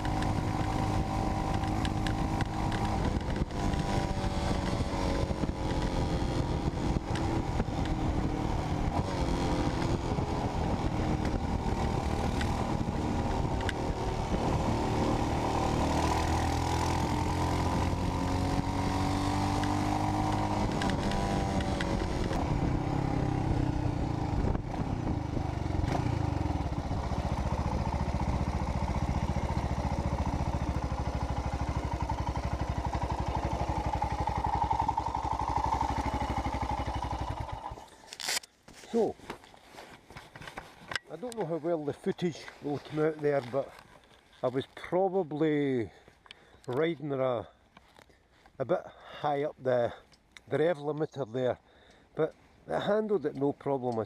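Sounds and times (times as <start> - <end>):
motorcycle engine revving: 0.0 - 37.9.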